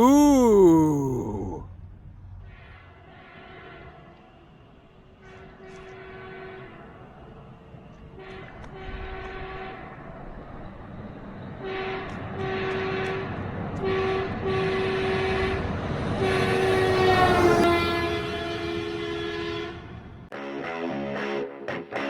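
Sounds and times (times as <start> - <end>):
passing train rumble: 2.0 - 20.3
locomotive horn blasts: 11.7 - 15.6, 16.2 - 20.0.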